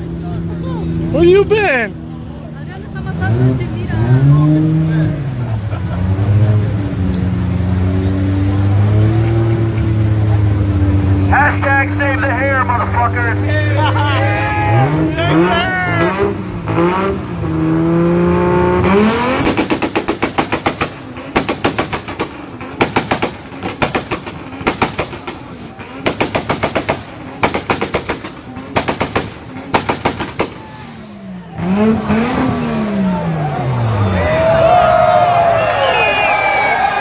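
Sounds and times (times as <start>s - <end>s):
car engine revving: 0.0s - 37.0s
exhaust pops and bangs: 18.8s - 31.0s.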